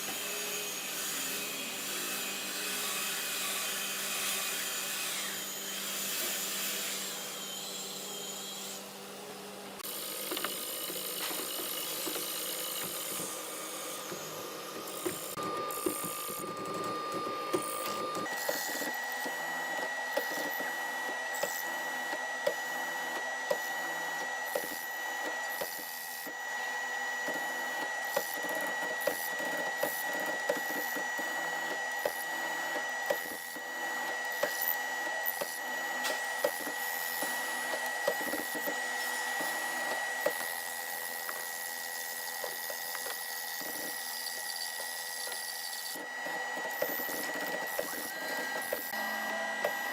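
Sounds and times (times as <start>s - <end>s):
power tool whining: 0.0s - 49.9s.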